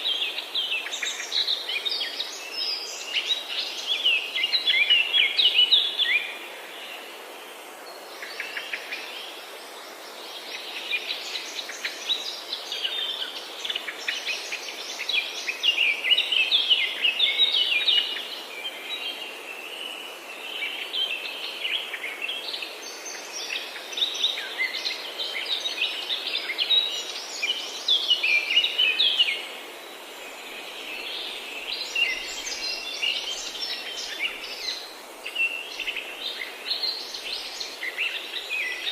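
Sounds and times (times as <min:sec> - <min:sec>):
steady background hiss: 0:00.0 - 0:38.9
songbirds chirping and singing: 0:07.9 - 0:38.9.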